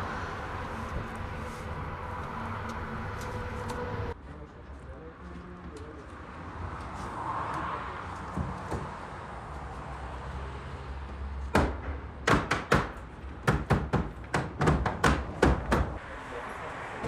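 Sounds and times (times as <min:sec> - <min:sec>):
sharp knocks on wood: 0:11.5 - 0:15.9.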